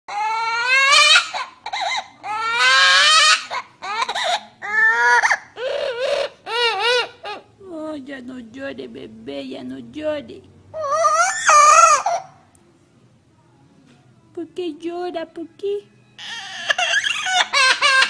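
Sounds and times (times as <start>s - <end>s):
bird mimicking baby crying: 0.1s - 7.5s, 10.8s - 12.5s, 16.2s - 18.0s.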